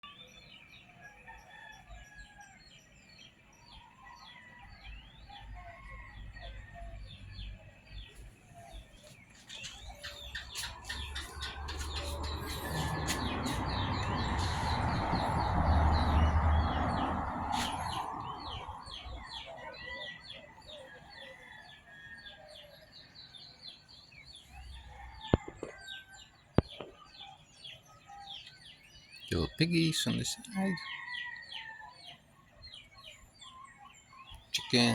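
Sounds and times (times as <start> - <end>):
small birds chirping: 0.0 - 34.9
chickens clucking: 9.4 - 19.0
roosters crowing: 9.6 - 22.6, 29.3 - 32.1, 34.6 - 34.9
broad rumbling noise: 10.2 - 19.2.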